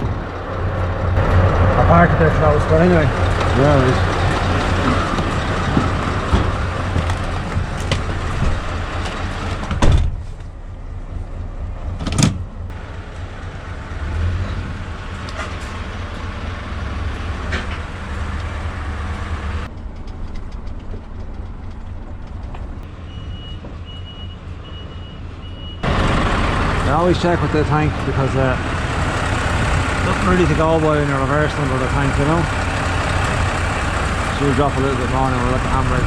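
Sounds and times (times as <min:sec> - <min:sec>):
diesel lorry engine running: 0:00.0 - 0:36.0
reversing beeper: 0:23.0 - 0:27.4.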